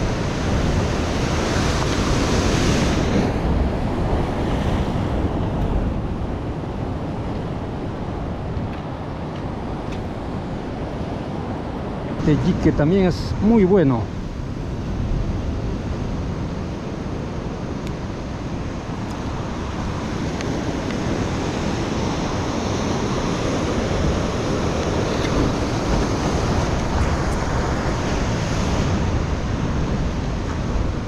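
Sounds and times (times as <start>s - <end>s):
surf washing against rocks: 0.0s - 31.0s
wind buffeting microphone: 0.0s - 31.0s.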